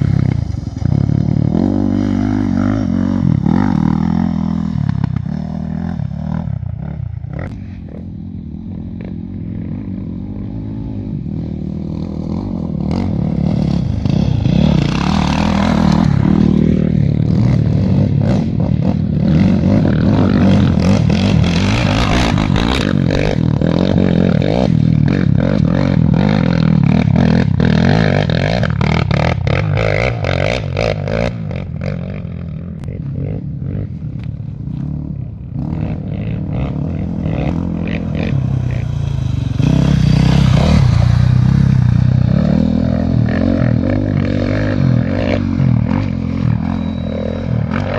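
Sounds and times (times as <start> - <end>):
loud vehicle engine running: 33.9 - 47.9.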